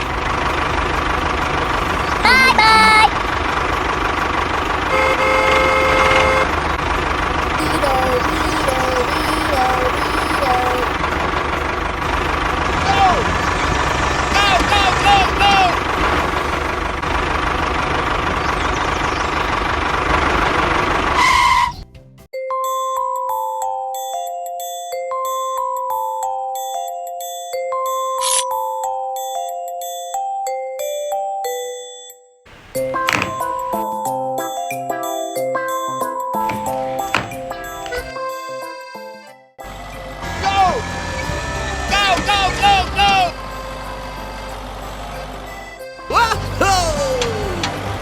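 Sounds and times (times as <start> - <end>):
tractor engine running: 0.0 - 21.8, 32.5 - 34.5, 35.9 - 38.9, 39.6 - 48.0
horn toots: 4.8 - 6.8, 7.5 - 11.0, 21.1 - 21.8, 39.6 - 48.0.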